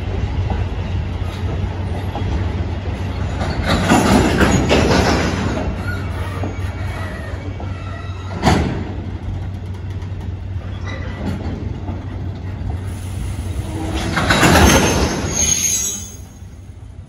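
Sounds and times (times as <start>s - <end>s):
wheels clattering over rail joints: 0.1s - 12.9s, 13.6s - 16.0s
high wheel squeal: 5.6s - 8.4s, 13.5s - 16.7s.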